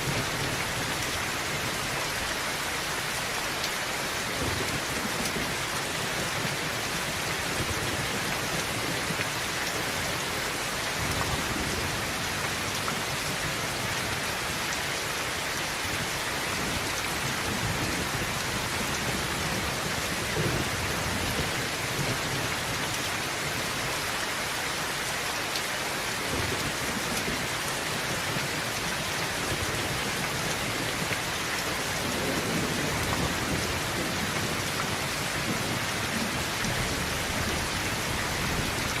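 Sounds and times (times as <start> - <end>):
heavy rain on a tin roof: 0.0 - 39.0.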